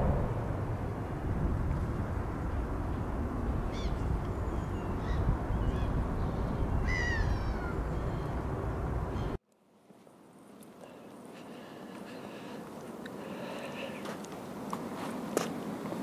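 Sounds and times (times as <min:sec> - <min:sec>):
low outdoor rumble: 0:00.0 - 0:09.4
birds calling: 0:02.4 - 0:09.4.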